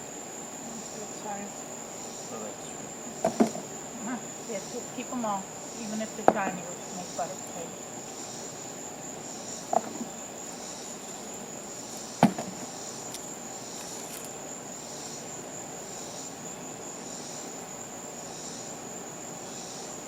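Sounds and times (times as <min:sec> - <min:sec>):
insects trilling: 0:00.0 - 0:20.0
soft pulsing insect call: 0:00.0 - 0:20.0
sharp knocks: 0:03.2 - 0:03.7, 0:09.7 - 0:10.1, 0:12.2 - 0:12.7.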